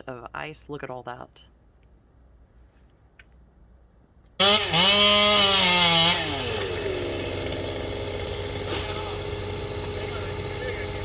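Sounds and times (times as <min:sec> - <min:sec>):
chainsaw engine revving and idling: 0:04.4 - 0:11.0.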